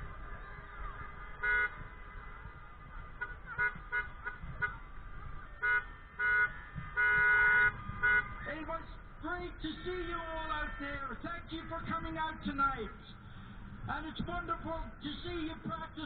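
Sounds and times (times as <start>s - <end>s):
car horns honking: 1.4s - 1.8s, 3.1s - 5.0s, 5.6s - 8.4s.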